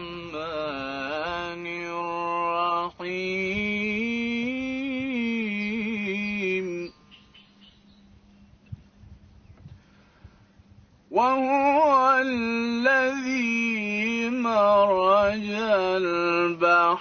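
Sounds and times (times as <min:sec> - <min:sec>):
man reciting melismatic chant: 0:00.0 - 0:07.0, 0:11.1 - 0:17.0.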